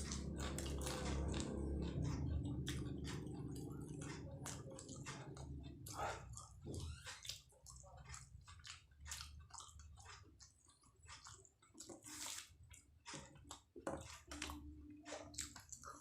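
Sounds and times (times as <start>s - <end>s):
wet chewing and biting: 0.0s - 16.0s.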